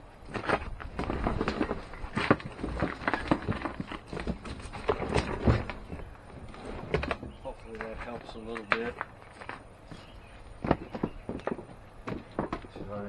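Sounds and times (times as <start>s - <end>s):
wind rumbling on microphone: 0.0s - 9.0s
knocks and thumps of tank handled: 0.3s - 9.0s, 9.9s - 13.0s
footsteps: 0.4s - 13.0s.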